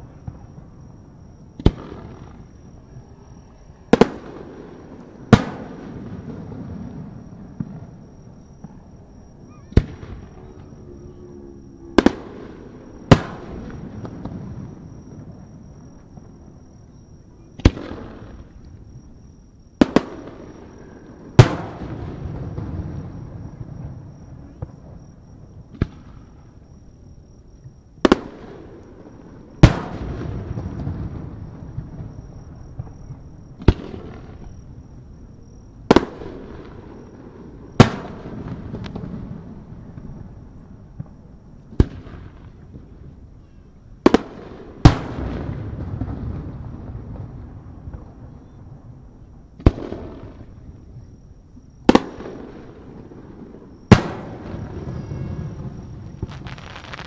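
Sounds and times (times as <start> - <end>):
fireworks bursting with bangs: 0.0 - 3.2, 3.8 - 10.8, 11.9 - 26.7, 28.0 - 43.1, 44.0 - 48.4, 49.6 - 51.1, 51.8 - 57.0.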